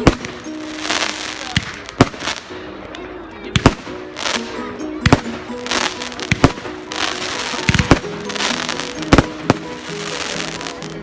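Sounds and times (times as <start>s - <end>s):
fireworks crackling hiss: 0.0s - 2.8s, 3.6s - 11.0s
music: 0.0s - 11.0s
fireworks bangs: 3.6s - 10.8s.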